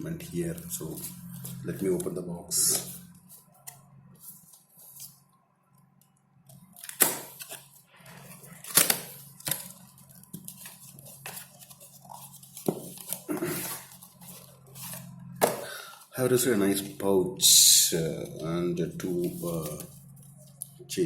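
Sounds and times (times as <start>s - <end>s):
cardboard packaging rustling and tearing: 6.6s - 15.7s.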